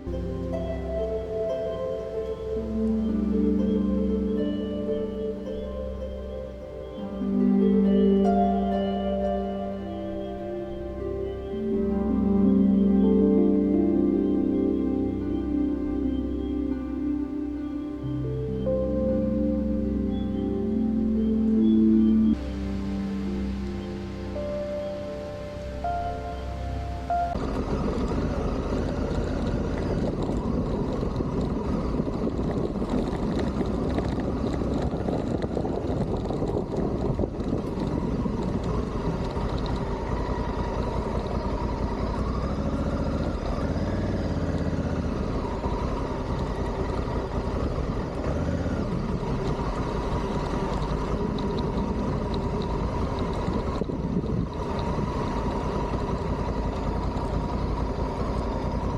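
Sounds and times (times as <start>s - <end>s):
motorcycle engine running: 27.4s - 58.9s.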